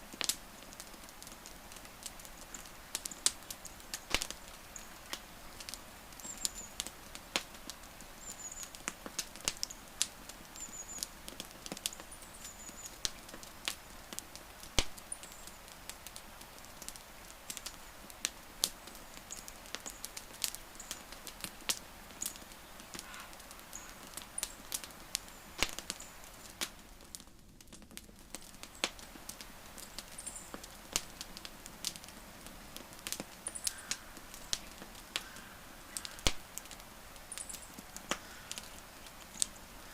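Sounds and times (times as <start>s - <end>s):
campfire crackling: 0.0s - 39.9s
faint steady hiss: 0.0s - 39.9s.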